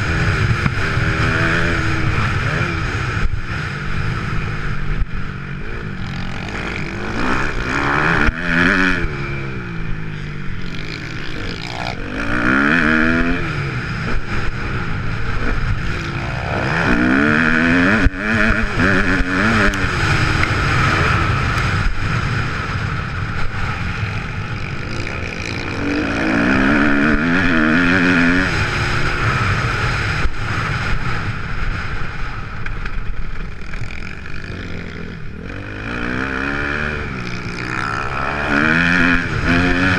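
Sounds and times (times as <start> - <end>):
motocross engine revving: 0.0 - 32.1, 33.5 - 39.9.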